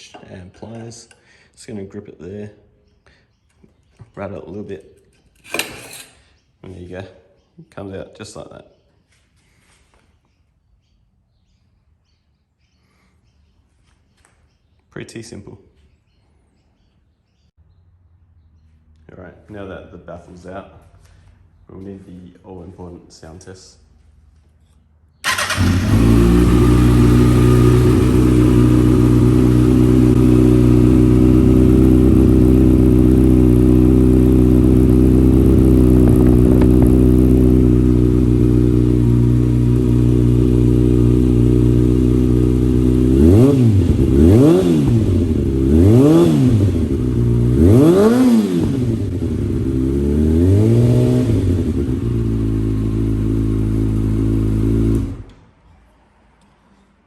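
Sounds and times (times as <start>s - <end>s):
motorcycle engine idling and revving: 25.2s - 55.4s.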